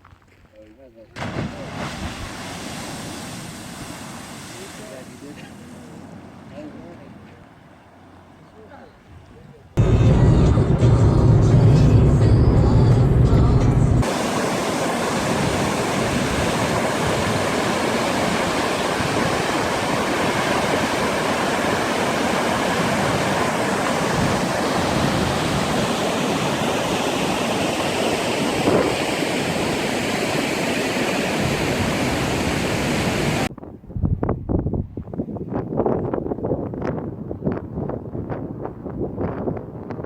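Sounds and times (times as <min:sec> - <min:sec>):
waterfall rushing: 0:10.8 - 0:33.5.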